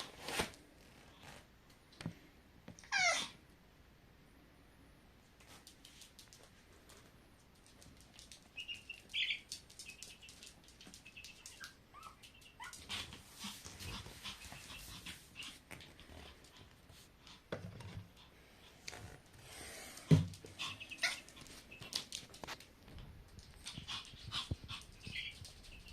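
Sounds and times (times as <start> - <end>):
chick peeping: 23.7 - 25.9.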